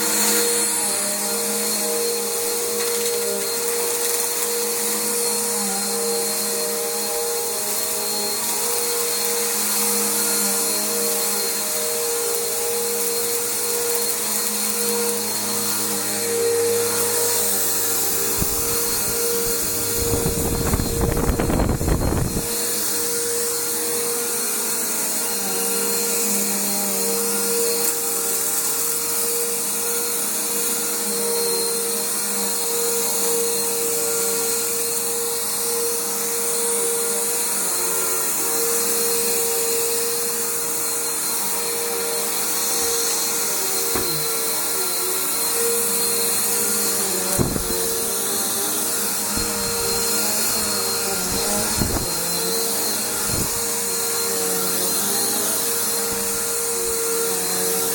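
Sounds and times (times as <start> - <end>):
upright vacuum cleaner running: 0.0 - 57.9.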